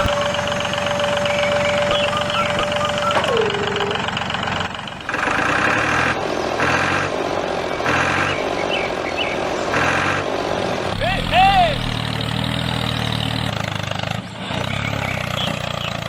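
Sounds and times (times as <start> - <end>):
short falling tone: 0.0 - 4.8, 10.9 - 13.0
engine running with regular pulse: 0.0 - 16.0.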